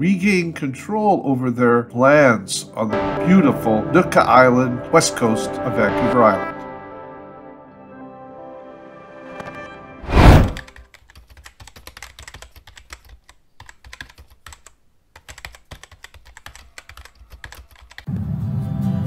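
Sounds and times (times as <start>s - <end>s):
typing on computer keyboard: 10.6s - 18.1s.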